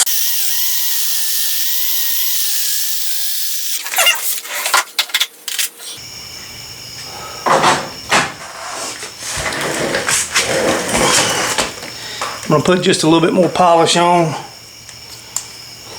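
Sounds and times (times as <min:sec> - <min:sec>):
battery drill whining: 0:00.0 - 0:04.4.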